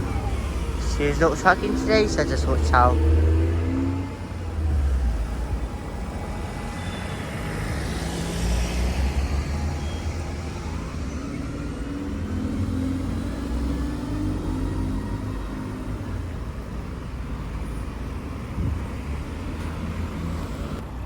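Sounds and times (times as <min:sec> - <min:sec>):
vehicle passing close by: 0:00.0 - 0:16.2
low engine rumble of traffic: 0:00.0 - 0:21.0.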